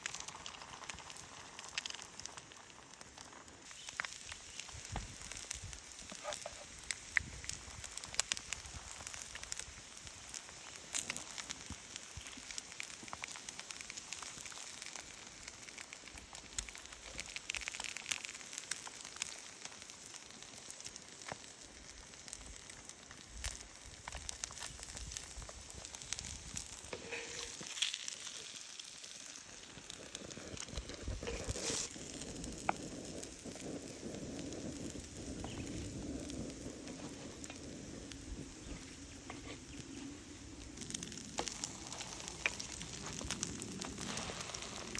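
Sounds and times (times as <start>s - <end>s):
campfire crackling and popping: 0.0s - 44.9s
food sizzling in a pan: 0.0s - 44.9s.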